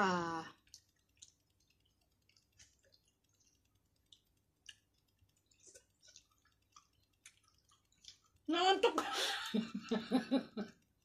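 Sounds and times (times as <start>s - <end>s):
mouth clicks of people chewing: 0.4s - 8.5s.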